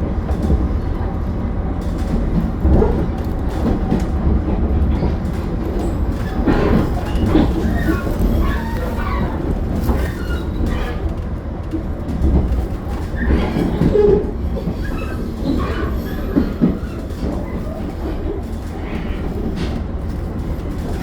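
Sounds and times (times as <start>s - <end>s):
train low rumble: 0.0s - 21.0s
wheel-on-rail clatter: 1.8s - 21.0s
wheel squeal: 5.8s - 11.1s, 13.0s - 18.0s.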